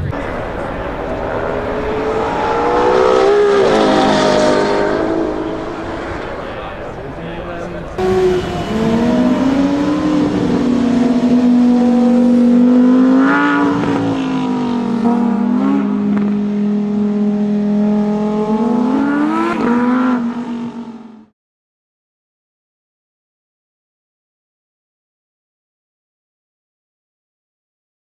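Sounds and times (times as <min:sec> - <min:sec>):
car engine running: 0:00.0 - 0:21.3.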